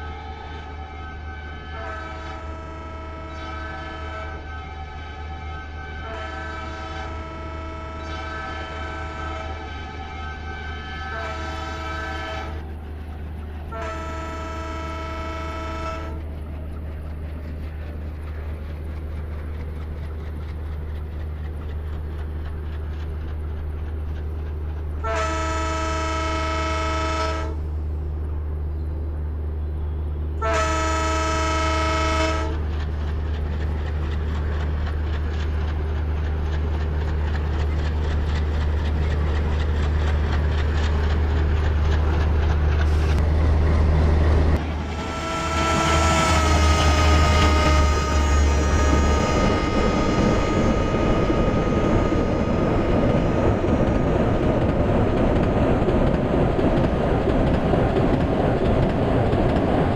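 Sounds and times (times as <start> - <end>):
train horn blasts: 0.0 - 12.7, 13.7 - 16.2, 25.0 - 27.7, 29.6 - 32.6, 44.6 - 53.7
train rumble: 0.0 - 59.9.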